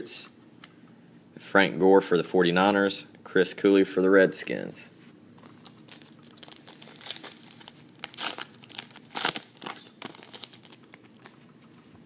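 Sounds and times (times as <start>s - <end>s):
card pack wrapper crinkling: 5.4s - 11.4s.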